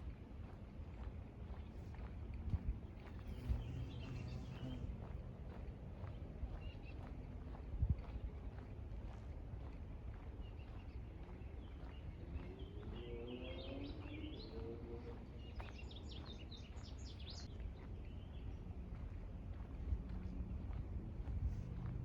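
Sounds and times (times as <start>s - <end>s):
small birds chirping: 2.9s - 4.9s, 10.4s - 18.6s.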